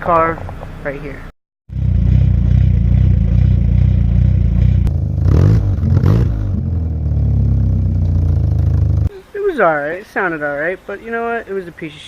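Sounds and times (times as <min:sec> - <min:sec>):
car engine idling and revving: 0:01.7 - 0:09.1.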